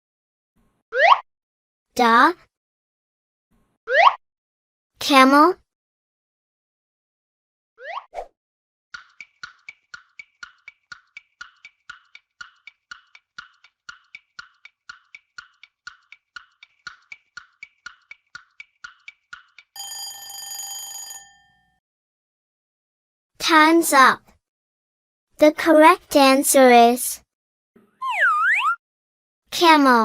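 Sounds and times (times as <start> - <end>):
countdown timer ticking: 9.0 - 20.1
ringing chime: 19.8 - 21.8.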